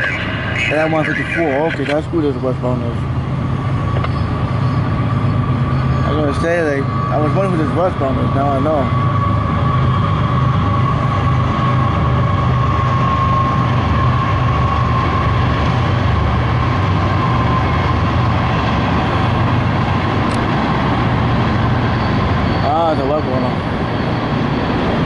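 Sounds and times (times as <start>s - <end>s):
freight train rumbling past: 0.0s - 25.0s
high steady ringing tone: 4.0s - 15.5s, 21.7s - 24.8s.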